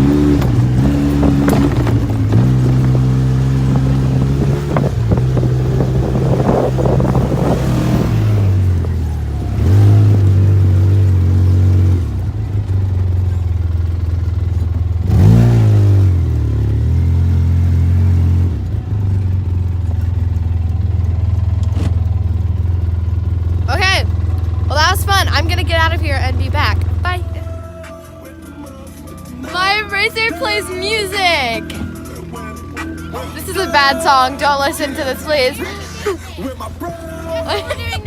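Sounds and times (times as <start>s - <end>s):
utility vehicle engine revving: 0.0s - 38.0s
knocks and rattles: 0.2s - 5.5s.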